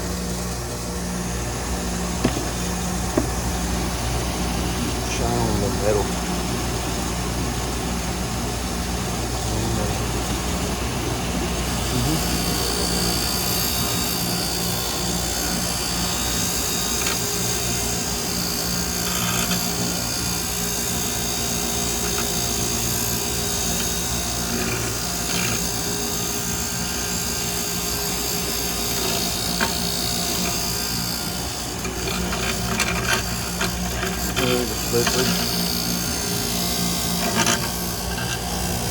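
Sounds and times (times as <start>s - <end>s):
wire brush scrubbing metal: 11.1s - 38.9s.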